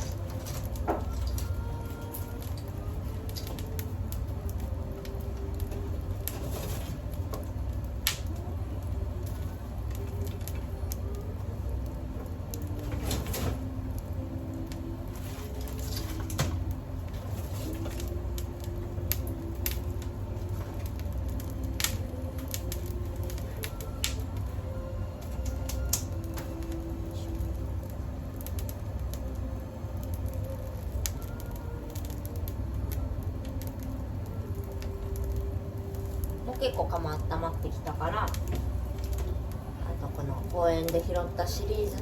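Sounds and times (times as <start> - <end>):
wood fire crackling: 0.0 - 42.0
sharp fire pops: 5.5 - 8.5.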